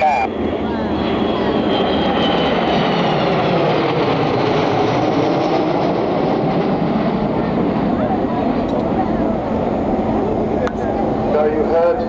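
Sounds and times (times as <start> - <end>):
jet engine roar: 0.0 - 12.0.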